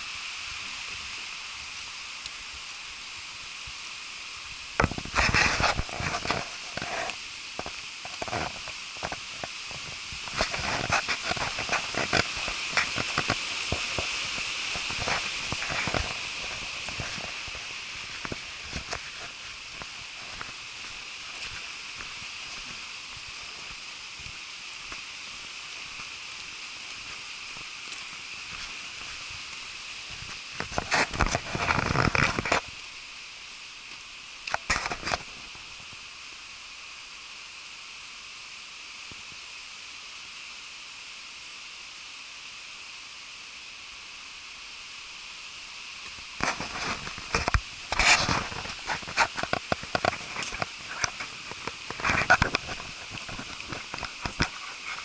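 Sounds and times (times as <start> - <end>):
waterfall hissing: 0.0 - 55.0
crunching footsteps: 4.8 - 32.9, 46.0 - 55.0.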